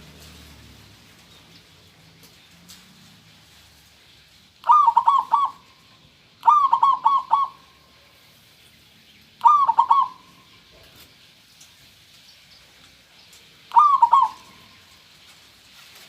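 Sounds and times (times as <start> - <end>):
dove cooing: 4.6 - 8.0, 9.4 - 10.6, 13.7 - 15.0.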